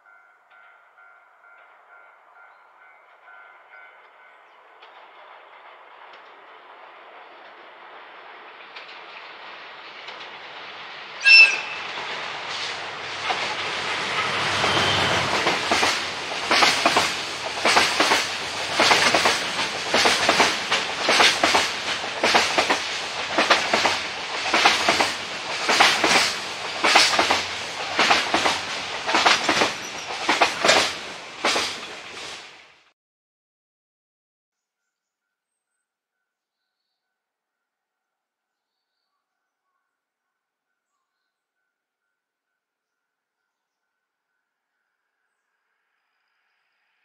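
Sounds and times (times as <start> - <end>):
train horn blast: 11.2 - 12.0, 14.2 - 15.3
wagon wheels clacking over rail joints: 13.2 - 32.1.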